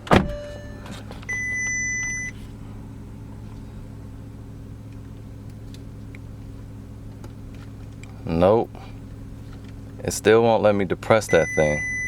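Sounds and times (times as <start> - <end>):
car engine idling: 0.0 - 12.0
electronic warning beep: 0.2 - 2.3, 11.3 - 12.0.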